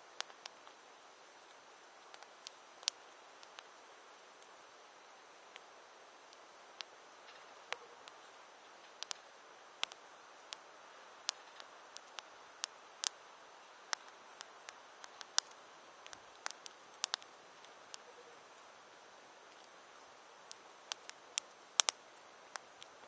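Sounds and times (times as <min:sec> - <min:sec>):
campfire crackling: 0:00.0 - 0:23.0
faint steady hiss: 0:00.0 - 0:23.0.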